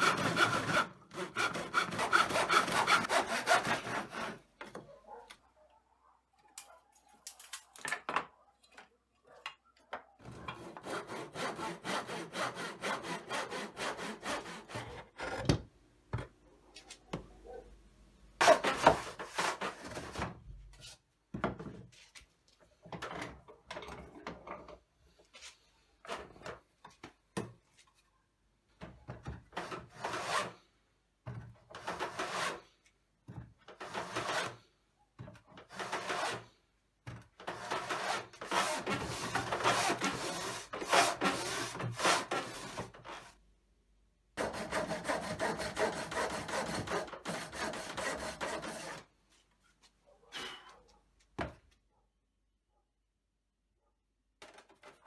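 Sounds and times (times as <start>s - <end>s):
hand tool scraping wood: 0.0s - 4.5s, 10.3s - 15.5s, 35.6s - 36.6s, 37.4s - 43.3s, 44.4s - 49.1s.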